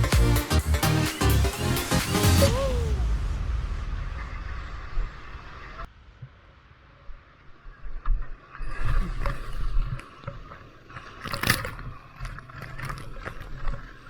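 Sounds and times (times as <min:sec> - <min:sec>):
low rumble: 0:01.4 - 0:08.7.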